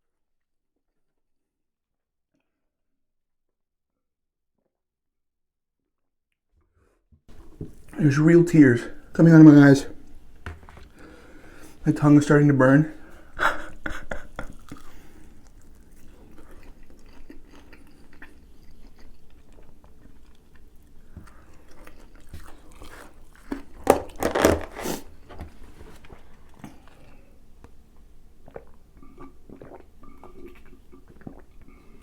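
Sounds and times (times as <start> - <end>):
person chewing crunchy food: 7.3 - 8.0, 13.0 - 27.4, 28.4 - 32.0.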